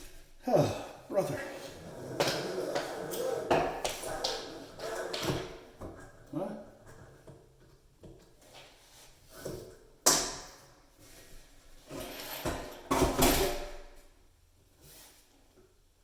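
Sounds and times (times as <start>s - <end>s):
faucet parts scraping and rattling: 11.9s - 13.7s.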